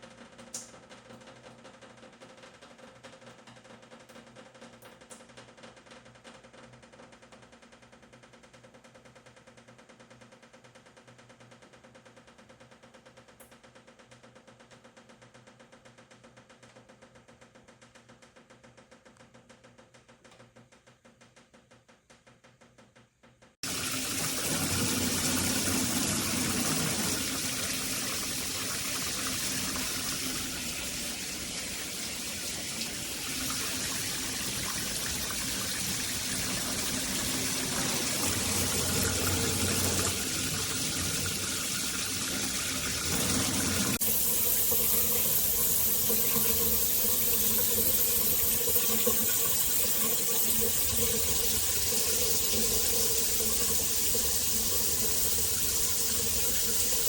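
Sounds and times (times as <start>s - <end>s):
shower head spraying water: 23.6s - 57.0s.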